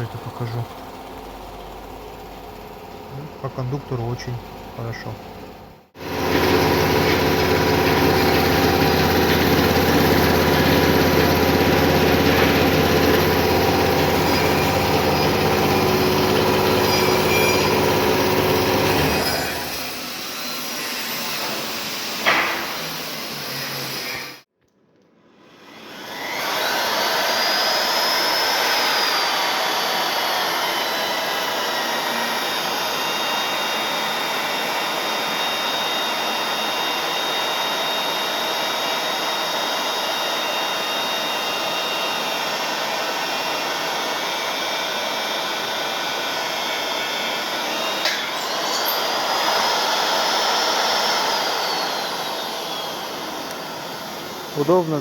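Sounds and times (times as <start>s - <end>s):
drill motor whining: 6.0s - 24.4s, 25.6s - 55.0s
drill click: 47.6s - 55.0s.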